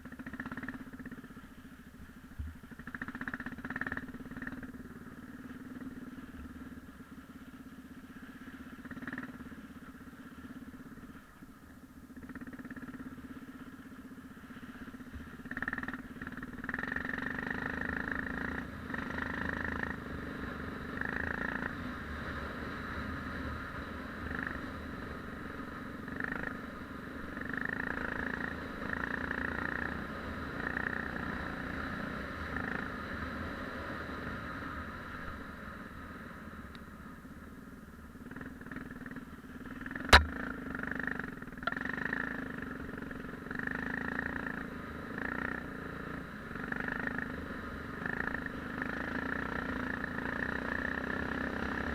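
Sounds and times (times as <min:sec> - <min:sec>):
motorcycle engine revving: 0:15.4 - 0:33.6, 0:38.3 - 0:51.9.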